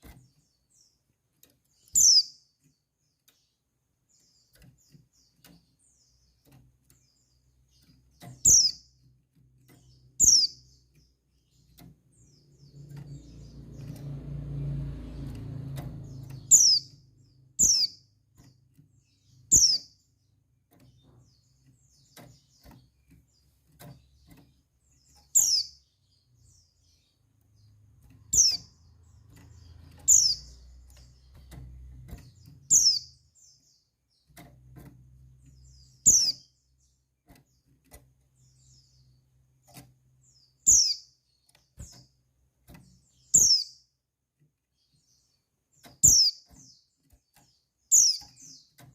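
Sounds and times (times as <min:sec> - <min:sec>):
bird chirping: 0:00.0 - 0:48.9.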